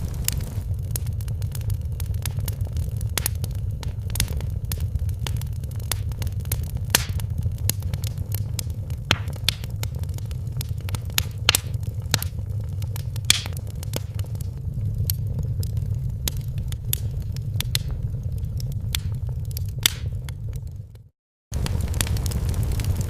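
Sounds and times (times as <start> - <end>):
wood fire crackling: 0.0 - 23.0
sharp pops: 6.9 - 7.3, 9.1 - 10.0, 10.9 - 12.4, 13.0 - 14.2.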